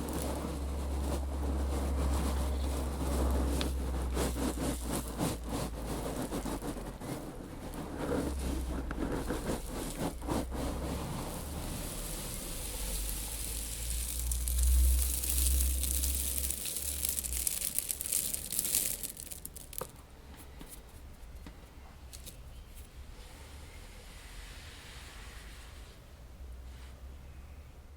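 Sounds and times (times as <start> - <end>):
seeds shifting and rustling: 0.0 - 20.1.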